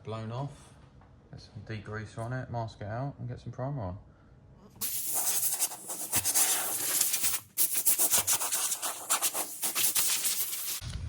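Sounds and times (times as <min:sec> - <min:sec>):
air blow gun hissing: 0:04.8 - 0:10.8.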